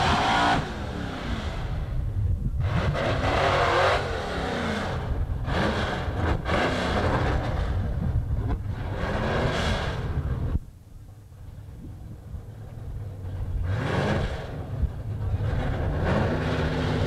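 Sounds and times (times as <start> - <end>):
car engine revving: 0.0 - 10.6, 13.2 - 17.0.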